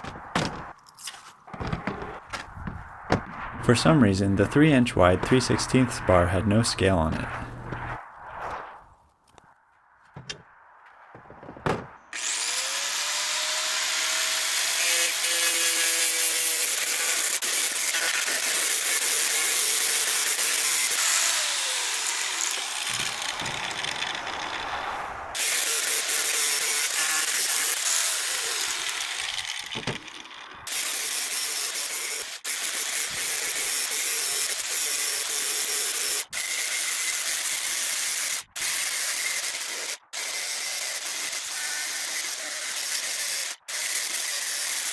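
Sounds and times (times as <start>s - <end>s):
angle grinder grinding steel: 12.2s - 44.9s.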